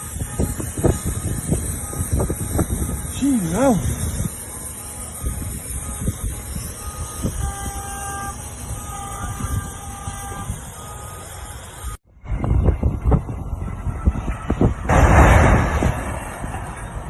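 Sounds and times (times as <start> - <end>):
car horn blasts: 0.0 - 12.0
road and engine rumble: 0.0 - 17.0.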